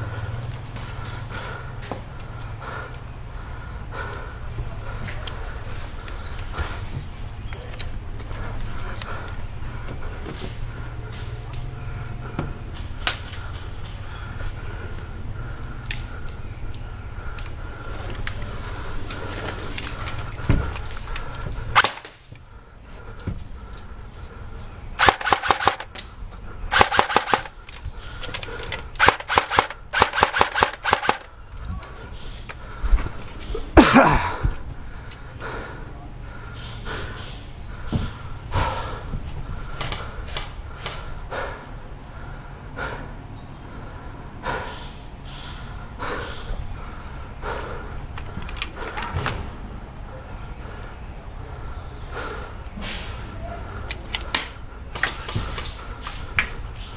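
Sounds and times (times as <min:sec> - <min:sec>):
background noise: 0:00.0 - 0:56.9
airsoft gun bursts: 0:21.8 - 0:22.2, 0:25.0 - 0:26.0, 0:26.7 - 0:27.6, 0:29.0 - 0:31.3.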